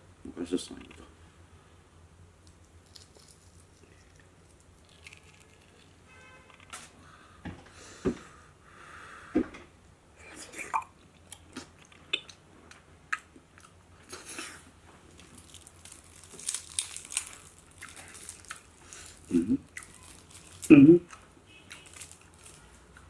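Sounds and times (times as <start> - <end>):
peeling eggshell: 2.4 - 6.0, 15.2 - 20.7
person chewing food: 2.4 - 6.0, 10.7 - 23.0.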